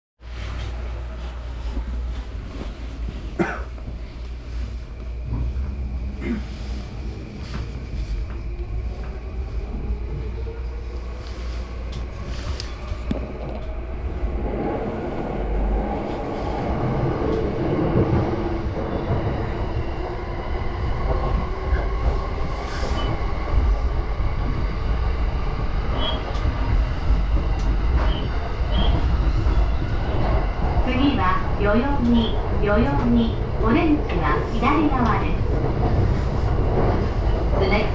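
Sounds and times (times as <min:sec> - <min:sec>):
rail clicks: 0:24.4 - 0:37.9.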